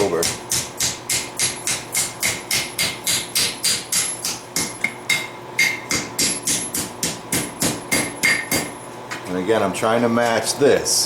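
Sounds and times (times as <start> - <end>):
hammer striking steel on anvil: 0.0 - 8.8.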